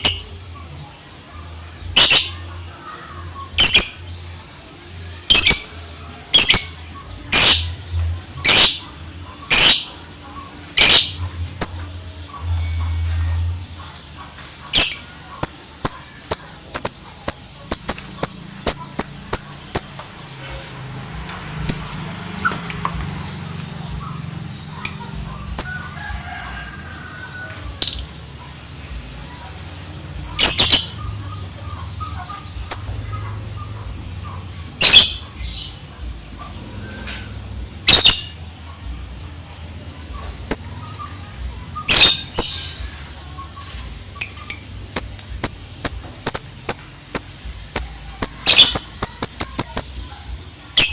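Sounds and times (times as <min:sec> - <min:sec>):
bird chirping: 0:00.0 - 0:04.5, 0:05.2 - 0:26.1, 0:27.3 - 0:38.4, 0:40.0 - 0:50.9.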